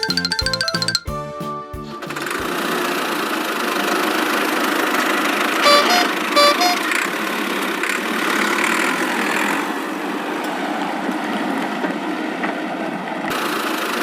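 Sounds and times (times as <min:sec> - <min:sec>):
cartoon toy engine running: 0:00.0 - 0:01.0, 0:02.1 - 0:09.5
two-note horn beep: 0:05.6 - 0:06.9.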